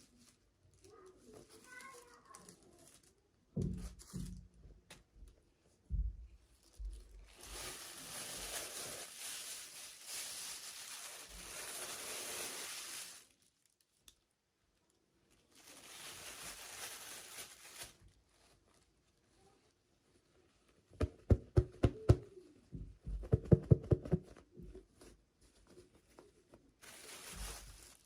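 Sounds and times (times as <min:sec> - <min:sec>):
packaging tearing and crinkling: 0:07.3 - 0:14.0, 0:15.5 - 0:18.2, 0:26.8 - 0:28.0.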